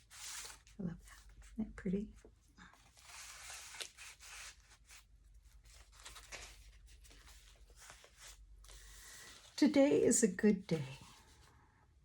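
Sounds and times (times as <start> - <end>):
thick paper page turning: 0.0 - 1.3, 2.8 - 9.7
small paper crackles: 2.7 - 9.7.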